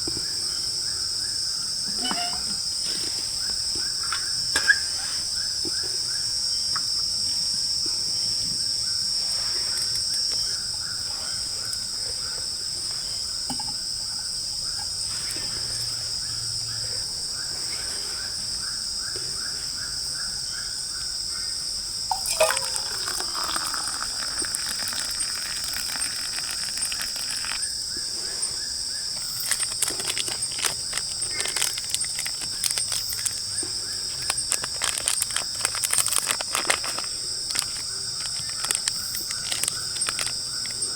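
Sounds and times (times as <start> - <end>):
insects chirring: 0.0 - 40.9
scattered clicks and crackles: 29.2 - 33.4, 34.2 - 40.9.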